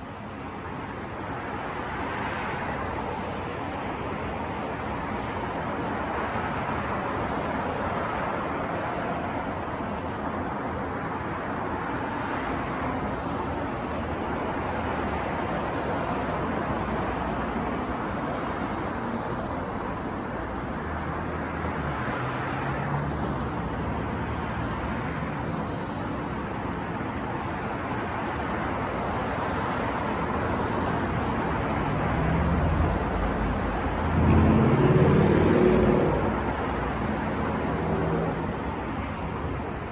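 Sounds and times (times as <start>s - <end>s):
cars passing: 0.0s - 39.9s
heavy vehicle engine rumbling: 30.9s - 39.7s.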